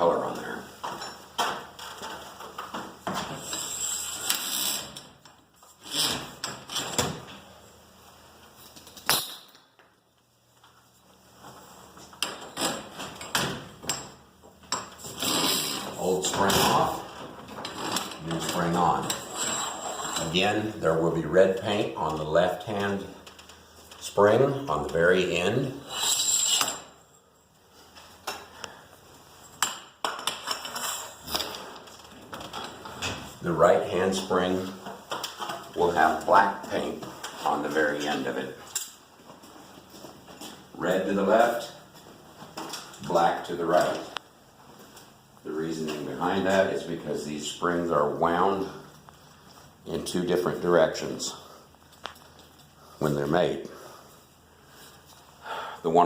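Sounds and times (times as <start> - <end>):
metal scraping and clanking: 15.0 - 20.5.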